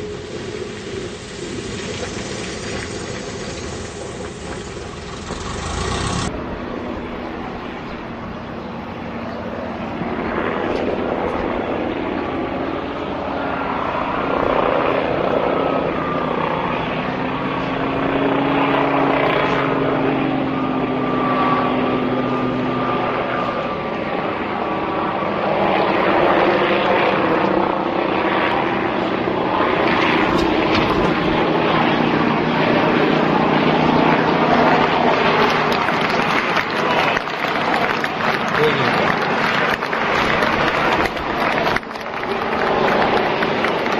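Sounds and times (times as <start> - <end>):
aircraft engine droning: 0.0 - 43.9.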